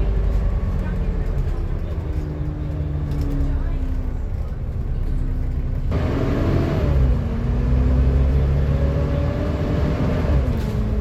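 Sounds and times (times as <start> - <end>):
bus diesel engine pulling: 0.0 - 11.0.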